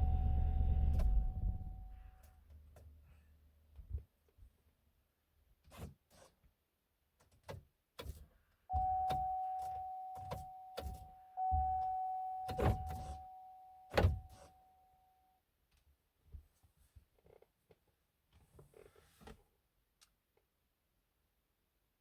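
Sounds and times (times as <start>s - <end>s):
car electronic chime: 0.0s - 2.0s, 8.7s - 15.2s.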